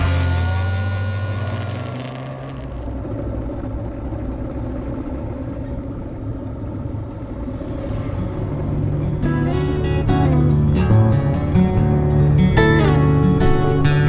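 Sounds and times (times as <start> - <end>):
motorcycle engine running: 0.0 - 7.6, 8.2 - 14.0
road noise: 0.0 - 14.0.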